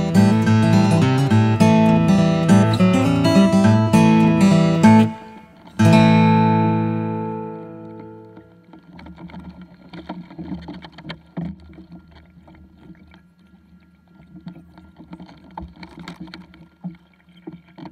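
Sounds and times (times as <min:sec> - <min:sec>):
wind: 0:06.7 - 0:17.9
rumble of water: 0:07.6 - 0:17.9.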